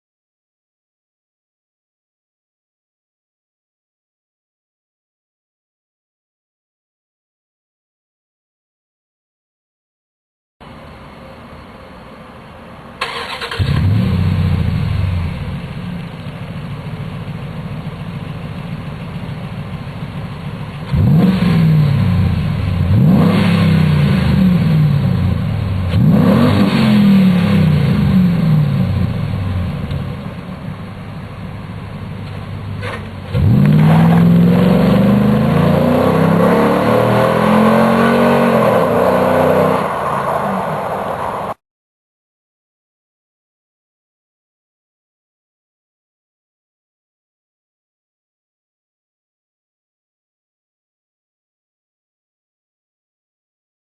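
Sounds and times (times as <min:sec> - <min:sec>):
truck engine starting and idling: 0:12.9 - 0:37.8
engine revving: 0:13.0 - 0:16.0, 0:20.8 - 0:30.2, 0:32.8 - 0:40.6.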